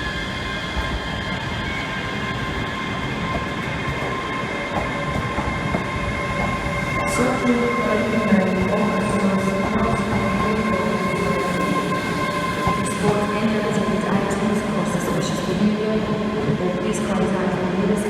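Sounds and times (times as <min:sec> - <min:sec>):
train rumble with high whine: 0:00.0 - 0:18.0.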